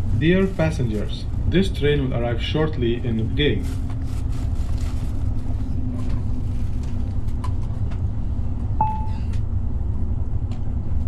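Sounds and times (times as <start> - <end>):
faint hum: 0.0 - 11.0
train rumble inside carriage: 0.0 - 11.0
short beep: 8.8 - 9.3.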